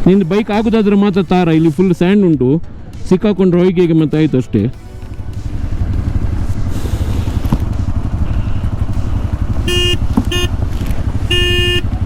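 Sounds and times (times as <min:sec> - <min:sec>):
motorcycle engine rumble: 0:00.0 - 0:03.9, 0:04.7 - 0:12.0
horn honking: 0:09.2 - 0:12.0.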